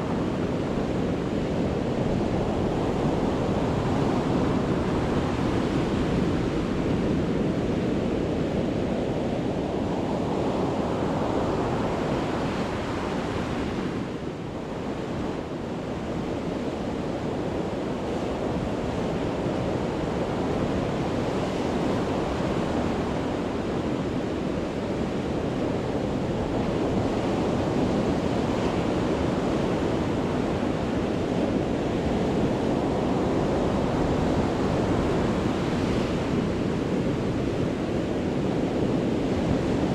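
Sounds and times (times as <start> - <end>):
surf breaking on a beach: 18.1 - 39.9.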